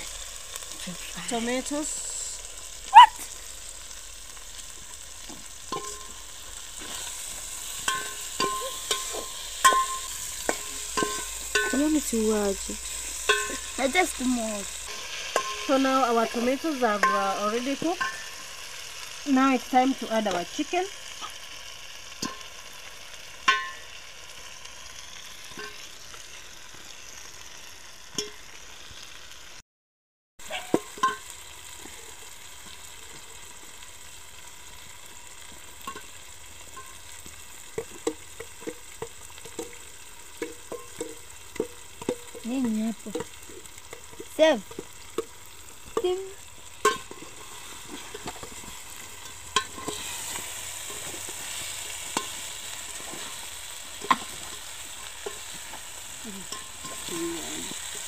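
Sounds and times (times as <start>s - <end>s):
sauce sizzling in oil: 0.0s - 29.6s, 30.4s - 58.0s
metal spoon scraping a pot: 46.8s - 55.6s.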